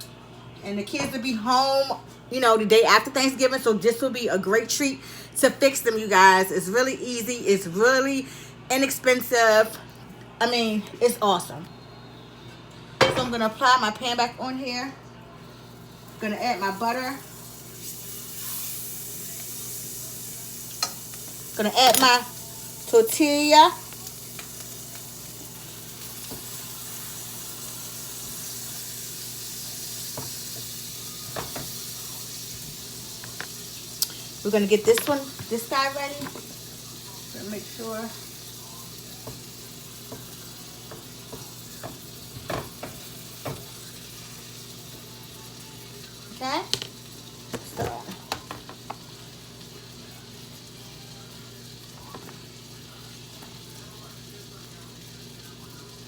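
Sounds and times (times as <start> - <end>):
tortilla sizzling in a pan: 15.4 - 56.0.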